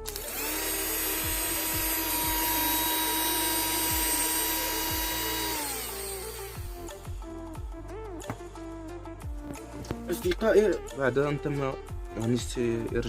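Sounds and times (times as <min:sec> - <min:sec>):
electric drill motor whining: 0:00.0 - 0:07.3.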